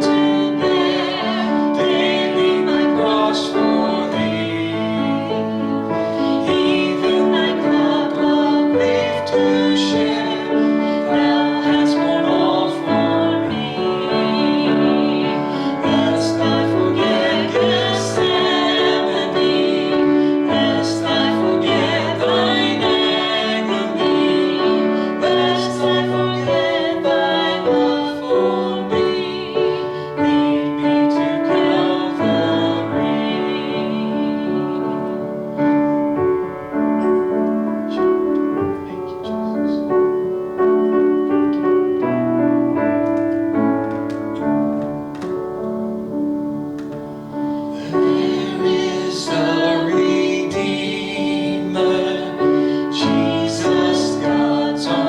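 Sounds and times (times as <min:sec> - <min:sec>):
person singing: 0:00.0 - 0:35.7, 0:47.6 - 0:55.0
piano playing chords: 0:00.0 - 0:55.0.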